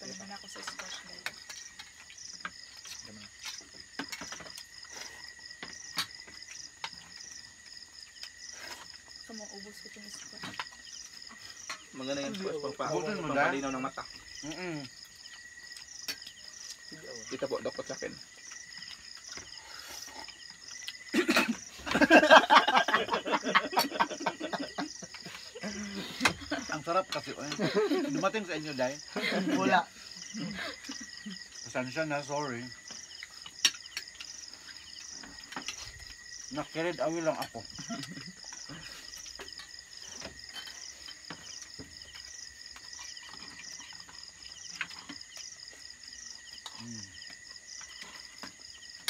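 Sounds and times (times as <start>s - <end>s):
crickets chirping: 0.0s - 49.0s
people laughing loudly: 21.2s - 26.7s, 27.4s - 28.3s, 29.2s - 29.8s.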